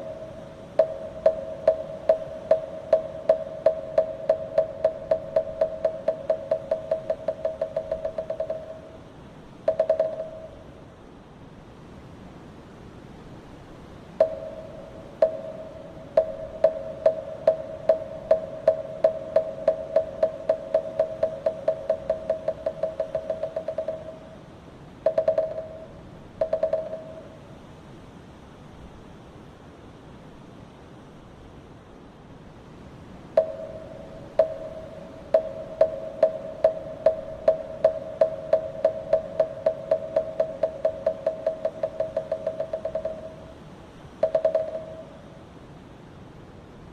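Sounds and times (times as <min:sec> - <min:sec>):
wooden fish drum knocking: 0:00.0 - 0:09.0, 0:09.7 - 0:10.6, 0:14.2 - 0:24.3, 0:25.1 - 0:27.3, 0:33.4 - 0:43.6, 0:44.2 - 0:45.1
wooden temple block struck: 0:00.0 - 0:09.0, 0:09.7 - 0:10.6, 0:14.2 - 0:24.4, 0:25.1 - 0:27.4, 0:33.4 - 0:43.6, 0:44.2 - 0:45.2.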